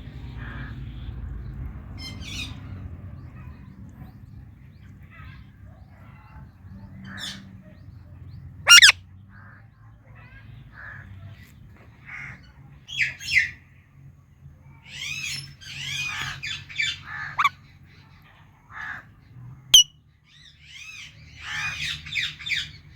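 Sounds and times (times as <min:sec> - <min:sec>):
parakeet chirps and trills: 0:00.1 - 0:09.0, 0:14.8 - 0:19.0, 0:19.8 - 0:22.9
parakeet screeches: 0:08.7 - 0:09.0, 0:17.1 - 0:17.5.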